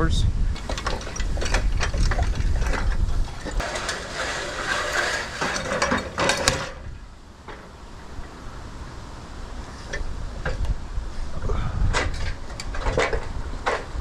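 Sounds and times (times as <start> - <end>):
wind buffeting microphone: 0.0 - 3.6, 8.0 - 14.0
mechanical clicking and rattling: 0.6 - 6.8.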